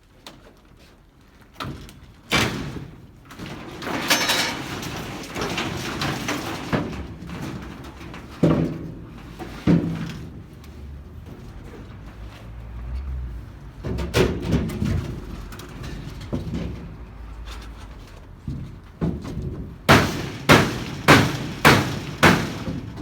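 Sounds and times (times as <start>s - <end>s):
metal roofing sheets clanking: 1.6s - 12.5s, 13.3s - 23.0s
metal scraping and rattling: 2.8s - 23.0s.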